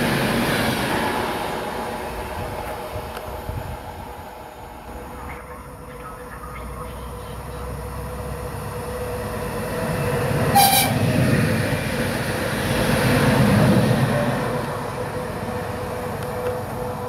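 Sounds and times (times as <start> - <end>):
train rumble and wheel noise: 0.0 - 17.0
train horn toot: 10.5 - 11.1.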